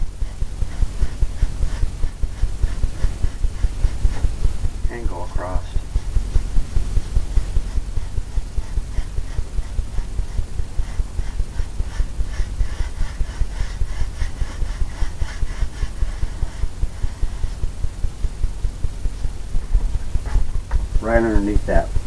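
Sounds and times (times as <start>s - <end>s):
paintbrush stroking canvas: 0.0s - 17.8s.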